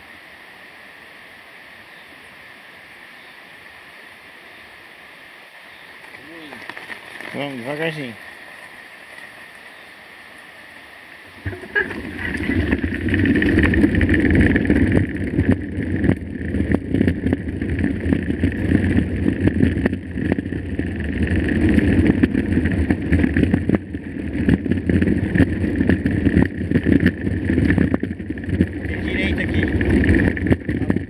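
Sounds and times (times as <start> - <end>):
bike tyres rumbling on trail: 5.9 - 31.0
wind on microphone: 11.3 - 31.0
bike frame rattles and knocks: 11.4 - 31.0.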